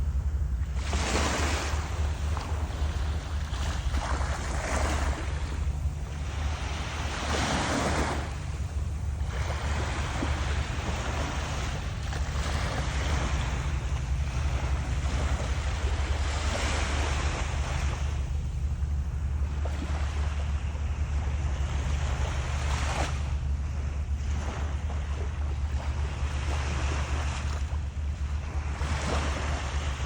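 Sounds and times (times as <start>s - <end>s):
waves washing on shore: 0.0s - 30.0s
wind rumbling on microphone: 0.0s - 30.0s.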